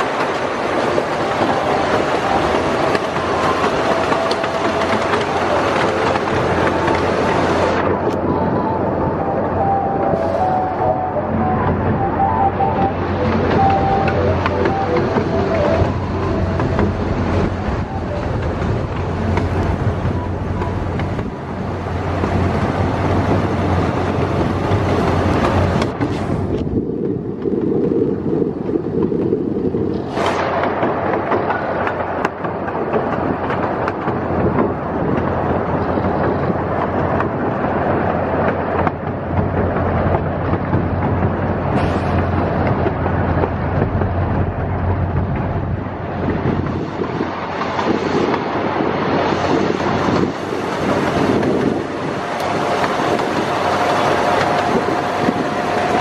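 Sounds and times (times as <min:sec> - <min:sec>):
miniature train wheels rumbling: 0:00.0 - 0:08.6, 0:12.8 - 0:56.0.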